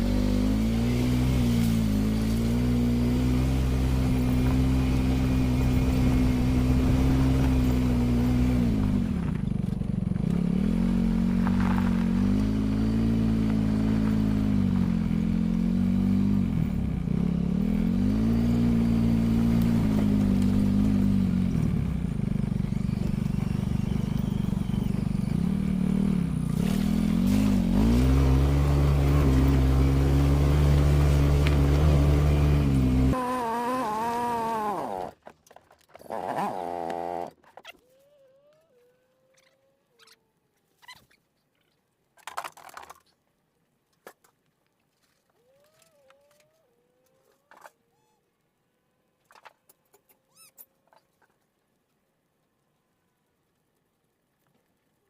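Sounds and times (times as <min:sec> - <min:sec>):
vehicle engine running: 0:00.0 - 0:33.3.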